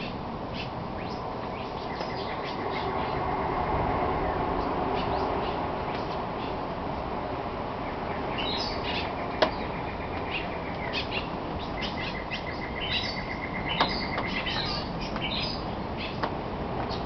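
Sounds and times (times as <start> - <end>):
rapid bird trills: 0.0 - 3.2, 7.9 - 16.2
high bird chirps: 7.9 - 16.2.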